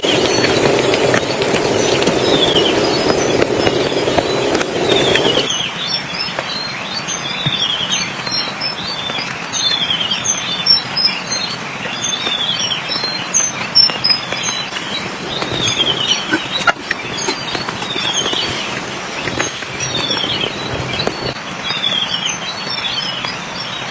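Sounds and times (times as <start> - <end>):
steady hiss: 0.0 - 5.5, 13.5 - 21.7
bird trilling call: 9.6 - 22.0.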